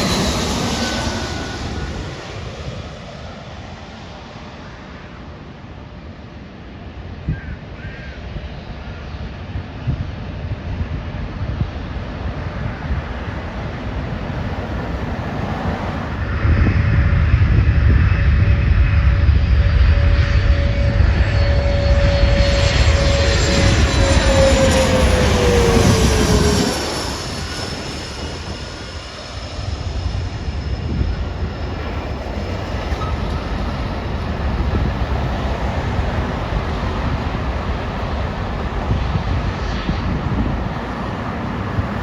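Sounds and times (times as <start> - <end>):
airliner engine whine: 0.0 - 42.0
heavy rumble of airliner: 0.0 - 42.0
faint steady roar: 11.3 - 42.0.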